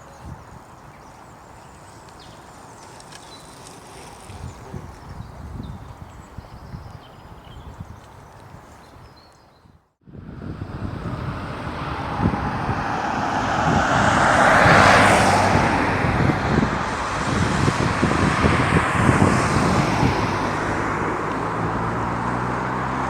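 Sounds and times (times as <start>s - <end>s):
traffic rumble: 0.0s - 6.8s, 10.0s - 23.0s
engine hum: 10.1s - 23.0s
vehicle passing close: 10.1s - 23.0s.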